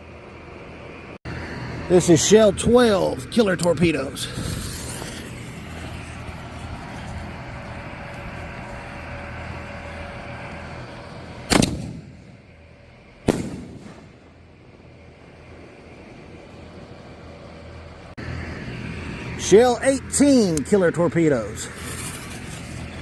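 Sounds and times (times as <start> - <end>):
firework fuse hiss: 4.2 - 7.4
firework launch bang: 11.5 - 12.4, 13.2 - 14.4
firework shell bursting: 11.5 - 12.4, 13.2 - 14.4.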